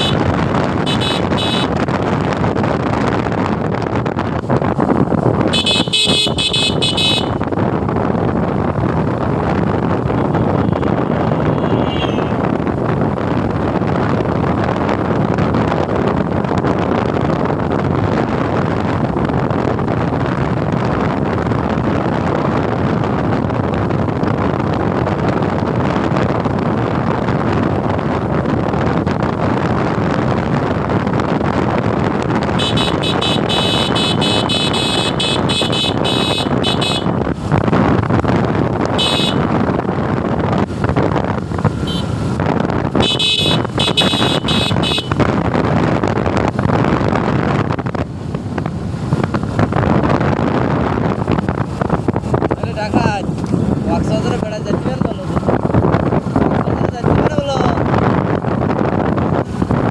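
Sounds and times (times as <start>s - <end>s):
vehicle horn honking: 0.0s - 0.2s, 0.8s - 1.7s, 5.5s - 7.4s, 10.3s - 12.4s, 32.6s - 37.2s, 39.0s - 39.5s, 41.8s - 42.2s, 43.0s - 45.2s
motorcycle engine: 0.0s - 26.0s, 26.7s - 52.6s
wind rush: 0.0s - 59.9s.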